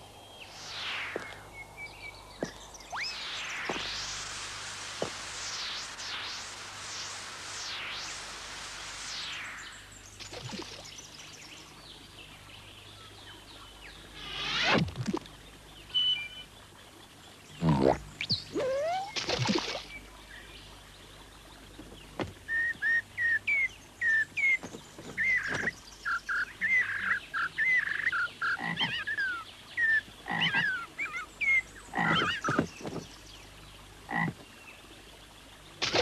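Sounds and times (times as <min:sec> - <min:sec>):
animal high chirps: 0:18.2 - 0:19.2.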